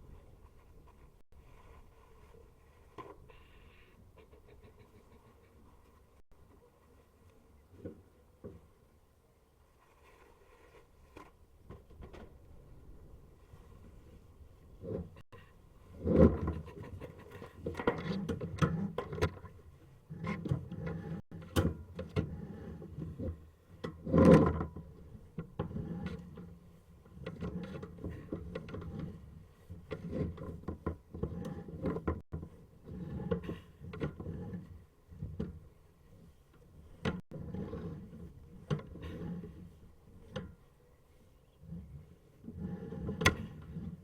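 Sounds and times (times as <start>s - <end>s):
cable scraping in drain pipe: 22.2s - 26.5s, 27.1s - 35.5s, 37.1s - 40.5s, 41.4s - 44.0s.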